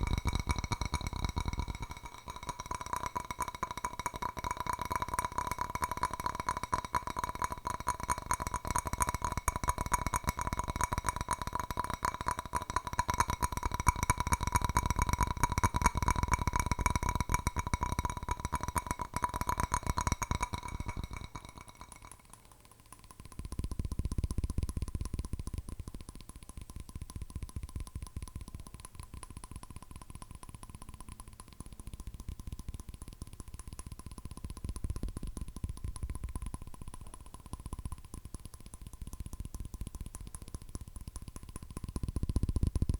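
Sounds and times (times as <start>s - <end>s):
fingernail tapping on hard object: 0.0s - 22.3s.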